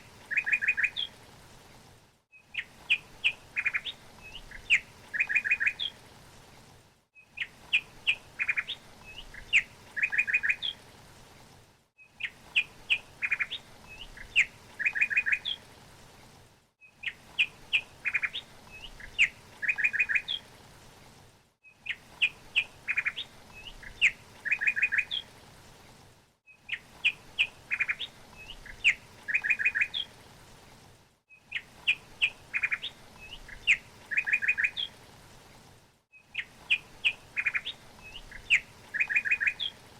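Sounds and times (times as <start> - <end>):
songbird chirping and trilling: 0.3 - 1.1, 2.5 - 6.0, 7.2 - 10.8, 12.0 - 15.6, 16.9 - 20.4, 21.8 - 25.3, 26.6 - 30.1, 31.5 - 35.0, 36.2 - 39.8.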